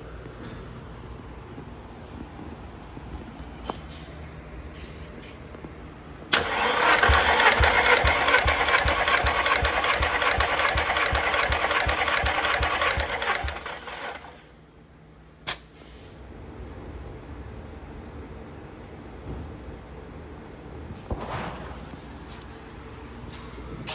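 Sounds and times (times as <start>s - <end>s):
engine cranking on starter: 6.3s - 14.5s.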